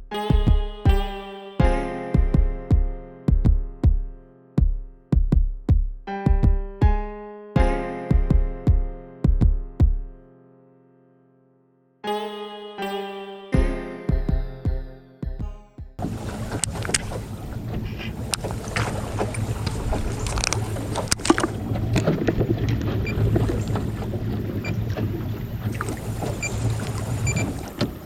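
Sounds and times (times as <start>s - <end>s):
piano music: 0.0s - 5.1s, 6.1s - 11.0s, 12.0s - 15.9s
water slapping boat hull: 16.0s - 28.0s
wind buffeting microphone: 16.0s - 28.0s.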